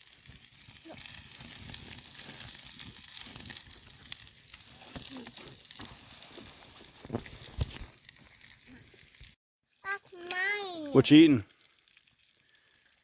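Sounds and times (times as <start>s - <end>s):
campfire crackling and hissing: 0.0s - 13.0s.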